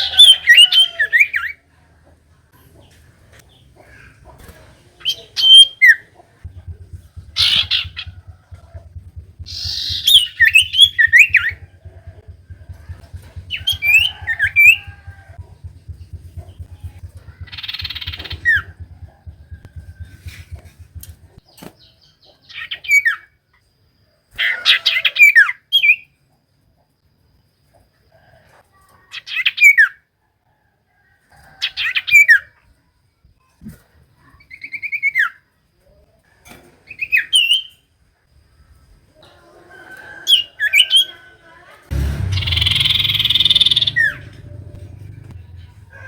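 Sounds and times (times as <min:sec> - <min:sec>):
bird calling with falling whistle: 0:05.0 - 0:21.4, 0:42.0 - 0:46.0
hissing noise with low rumble: 0:06.4 - 0:21.4.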